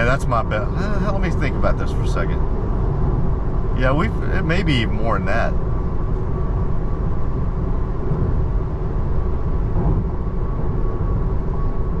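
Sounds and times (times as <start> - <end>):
faint steady tone: 0.0 - 12.0
road and tyre noise in car: 0.0 - 12.0.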